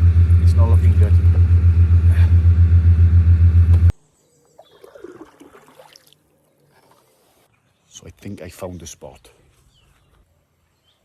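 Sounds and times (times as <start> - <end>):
engine throbbing hum: 0.0 - 3.9.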